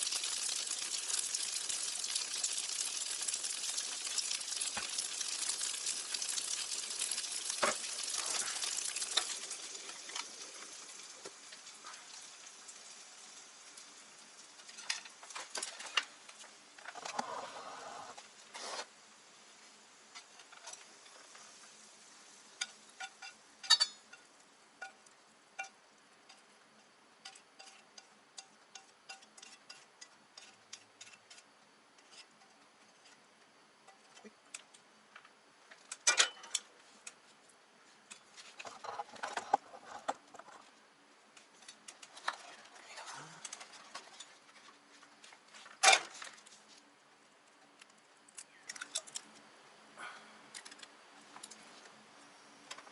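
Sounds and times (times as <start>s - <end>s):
tableware clicking and clinking: 22.6s - 25.0s, 36.0s - 36.7s.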